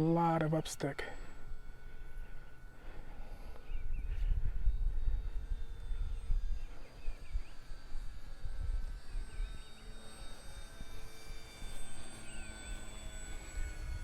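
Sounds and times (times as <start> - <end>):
model airplane motor whining: 0.0 - 14.0
wind rumbling on microphone: 3.1 - 14.0.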